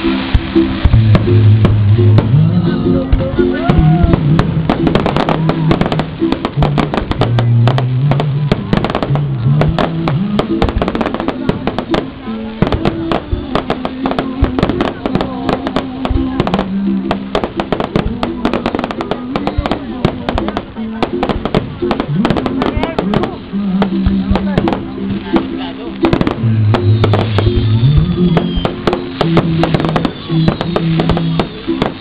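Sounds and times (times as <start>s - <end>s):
fireworks bangs and crackles: 0.0s - 32.0s
music: 0.0s - 32.0s.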